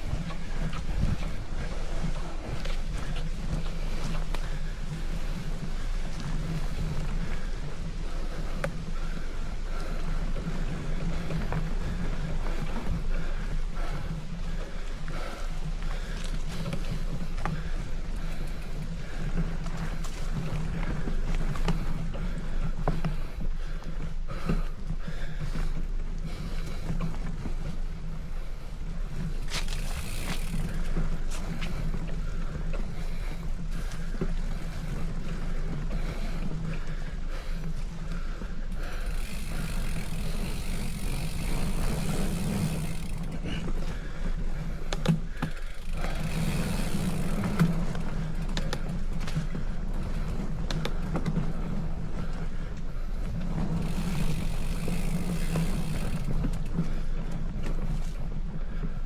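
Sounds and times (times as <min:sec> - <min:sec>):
wind on microphone: 0:00.0 - 0:09.9
bicycle tyres rolling on road: 0:00.0 - 0:59.0
faint clicks: 0:02.6 - 0:04.7, 0:44.6 - 0:51.4.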